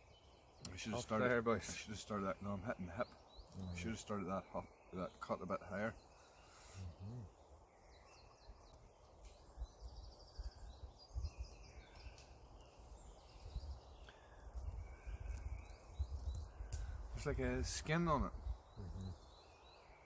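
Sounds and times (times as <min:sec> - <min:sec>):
birds chirping: 0:00.0 - 0:20.0
low wind rumble: 0:09.5 - 0:19.4.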